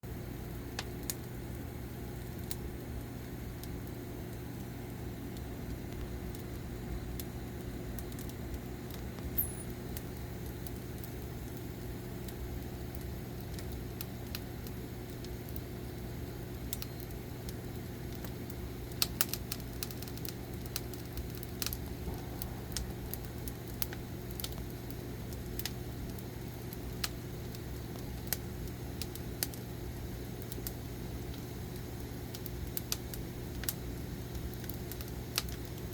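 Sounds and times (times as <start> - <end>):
firewood crackling and popping: 0.1 - 35.9
low hum: 4.6 - 12.5, 20.7 - 26.5.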